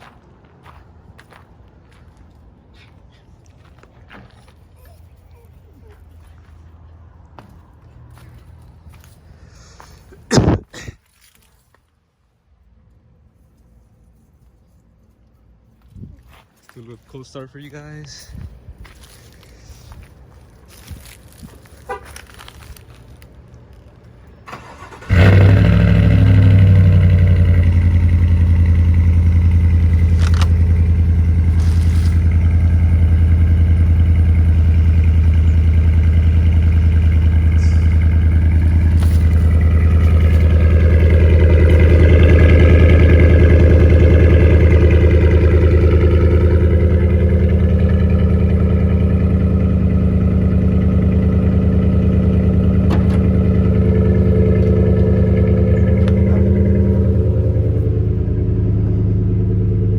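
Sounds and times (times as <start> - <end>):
pickup engine starting and idling: 24.2 - 59.9.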